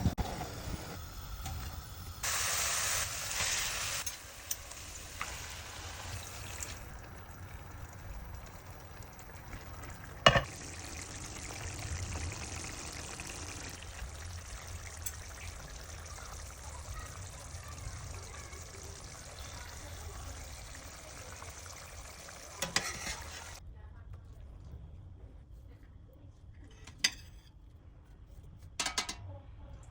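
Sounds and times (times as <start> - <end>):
food sizzling in hot oil: 0.0 - 23.6
utensil clacking on pan: 10.2 - 10.5, 22.6 - 23.4, 28.8 - 29.2.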